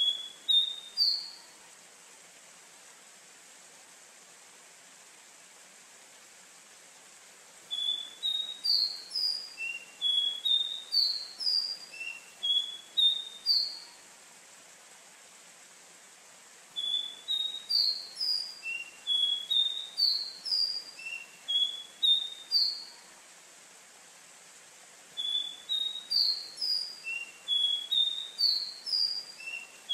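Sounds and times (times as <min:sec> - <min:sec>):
bird singing high whistles: 0:00.0 - 0:01.4, 0:07.7 - 0:14.0, 0:16.8 - 0:23.1, 0:25.2 - 0:29.9
faint steady hiss: 0:00.0 - 0:29.9.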